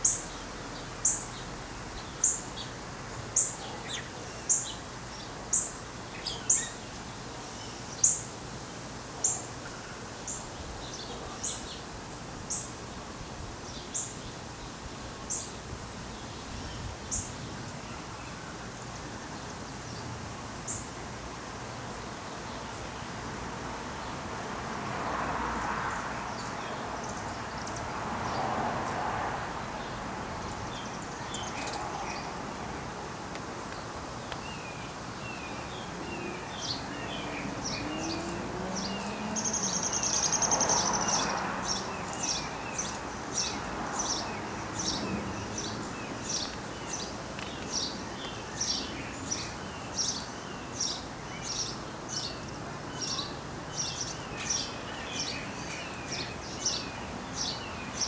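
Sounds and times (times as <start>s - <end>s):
steady background hiss: 0.0s - 58.0s
bird chirping: 34.2s - 58.0s.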